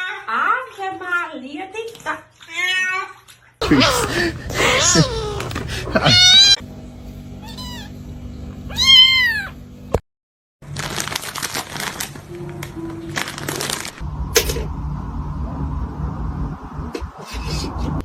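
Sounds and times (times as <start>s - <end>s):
cat meowing: 3.7s - 6.6s, 8.7s - 9.6s
steady noise: 14.0s - 18.0s.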